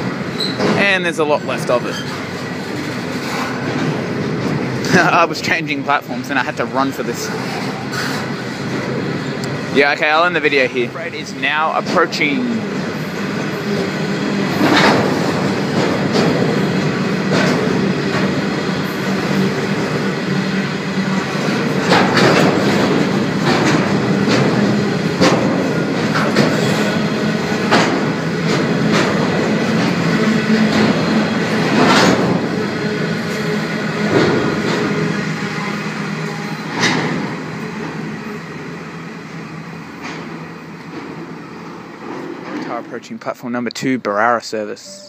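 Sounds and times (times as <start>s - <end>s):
wheels clacking over rail joints: 0.0s - 42.8s
freight train rumbling: 0.0s - 45.0s.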